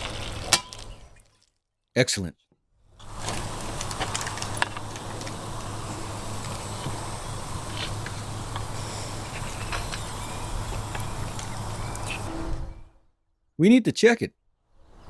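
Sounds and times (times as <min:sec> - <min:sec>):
meat sizzling on a grill: 0:00.0 - 0:01.0, 0:03.0 - 0:12.3
charcoal popping and crackling: 0:00.0 - 0:01.6, 0:03.0 - 0:12.3.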